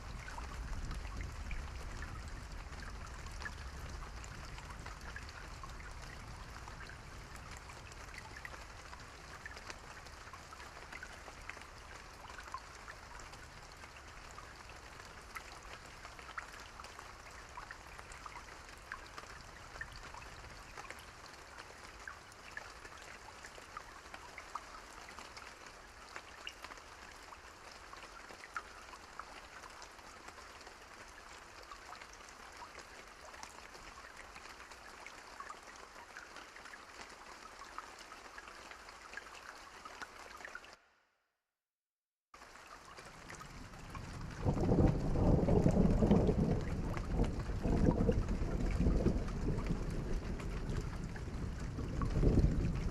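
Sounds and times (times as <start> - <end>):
raindrop ticks: 0.0 - 25.4, 42.4 - 52.9
rain falling: 0.0 - 40.8, 42.4 - 52.9.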